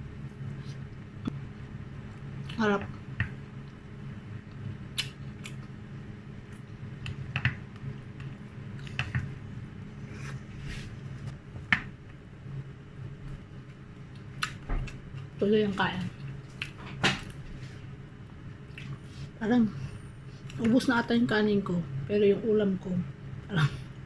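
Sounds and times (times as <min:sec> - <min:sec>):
steady low hum: 0:00.0 - 0:24.0
quiet chewing: 0:18.7 - 0:19.2.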